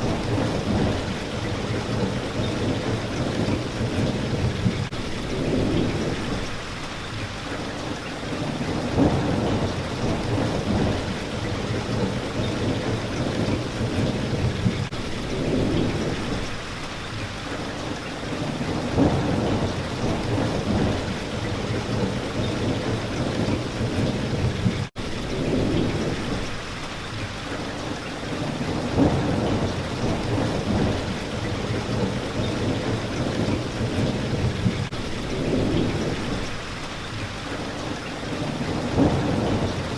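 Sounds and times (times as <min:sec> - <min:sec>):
thunder rumbling: 0:00.0 - 0:06.8, 0:08.2 - 0:16.8, 0:18.2 - 0:27.0, 0:28.3 - 0:39.9
rain hitting a window: 0:00.0 - 0:39.9.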